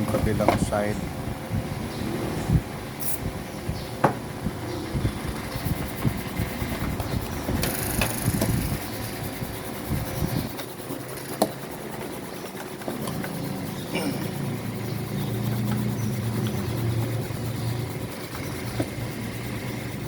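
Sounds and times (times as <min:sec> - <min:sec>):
sharp clicks: 0:07.6 - 0:08.9.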